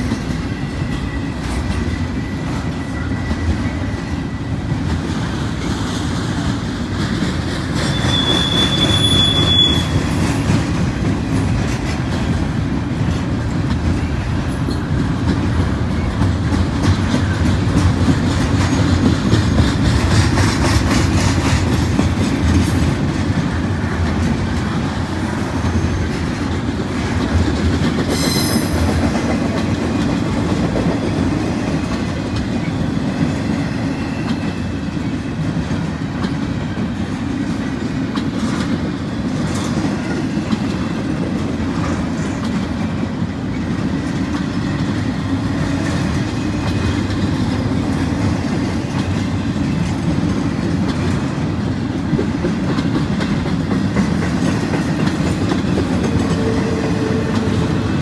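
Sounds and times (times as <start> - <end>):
freight cars rumbling and clacking: 0.0 - 58.0
high-pitched wheel squeal: 7.8 - 10.3.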